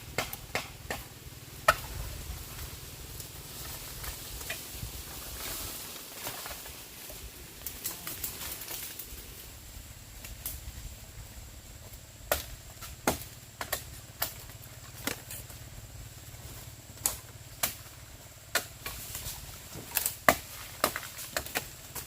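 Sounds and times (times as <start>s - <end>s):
steady low hum: 0.0s - 22.0s
sharp knocks and snaps: 0.1s - 1.9s, 19.7s - 22.0s.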